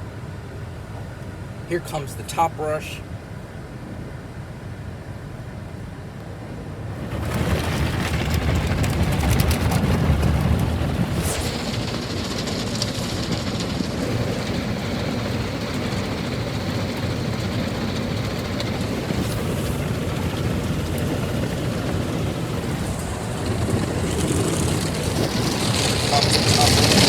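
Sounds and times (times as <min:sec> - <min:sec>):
car wash brushes scrubbing: 0:07.0 - 0:27.0
hissing water spray: 0:07.0 - 0:27.0.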